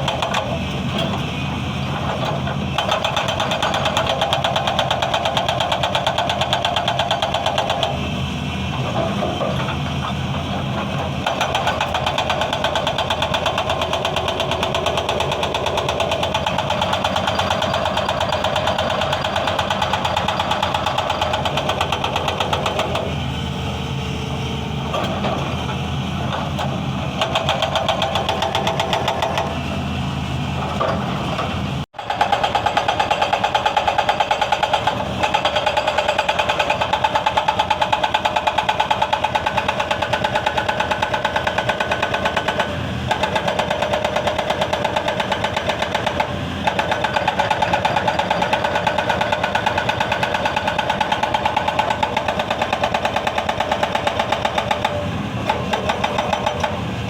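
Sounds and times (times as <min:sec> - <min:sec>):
hydraulic breaker hammering stone: 0:00.0 - 0:01.2, 0:01.8 - 0:23.2, 0:24.9 - 0:29.6, 0:30.6 - 0:57.0
diesel engine running: 0:00.0 - 0:57.0.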